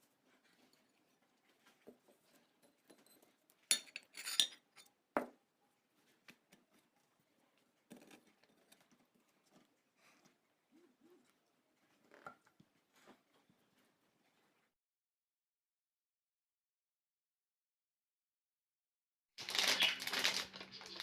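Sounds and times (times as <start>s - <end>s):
kitchenware clinking and clattering: 1.7s - 5.4s.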